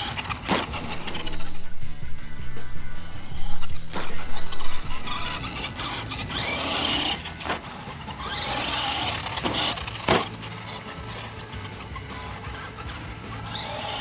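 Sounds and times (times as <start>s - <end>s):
electric motor whining: 0.0s - 14.0s
toy truck knocking on ground: 5.1s - 14.0s.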